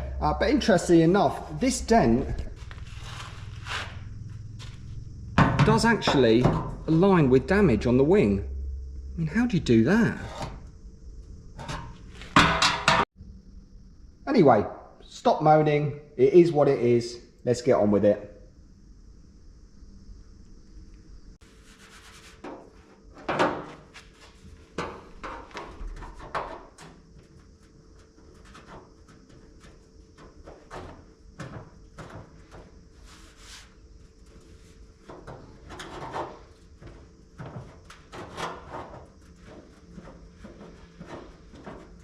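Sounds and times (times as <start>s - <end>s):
faint steady hum: 0.0s - 42.0s
scraping on car body panel: 34.3s - 42.0s.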